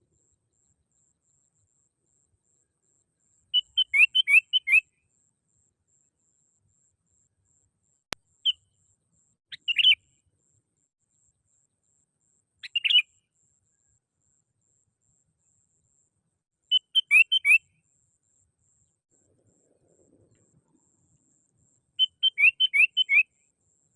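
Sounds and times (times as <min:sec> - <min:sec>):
bird calling: 0:03.5 - 0:04.9, 0:09.5 - 0:10.0, 0:12.6 - 0:13.1, 0:16.7 - 0:17.6, 0:22.0 - 0:23.3.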